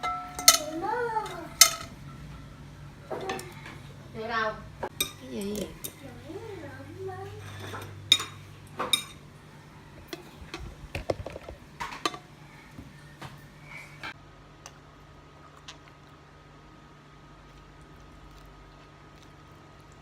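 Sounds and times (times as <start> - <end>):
dishes and utensils clinking: 0.0 - 4.0, 4.8 - 6.6, 7.2 - 9.3, 10.0 - 12.3.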